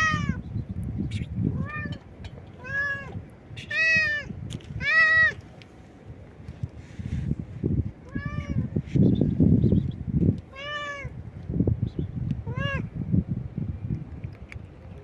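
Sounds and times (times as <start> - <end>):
cat meowing loudly: 0.0 - 0.4, 1.5 - 2.0, 2.6 - 5.4, 8.0 - 8.7, 10.5 - 11.2, 12.4 - 12.9.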